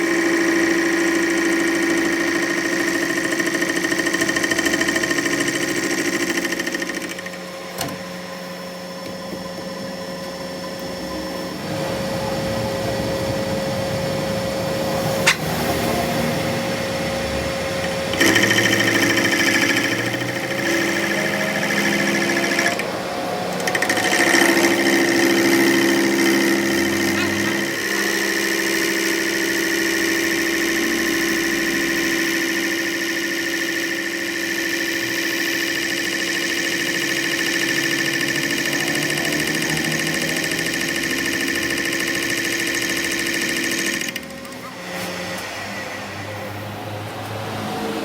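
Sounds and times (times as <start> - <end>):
machine motor humming: 0.0 - 48.0
sharp click: 15.2 - 15.5.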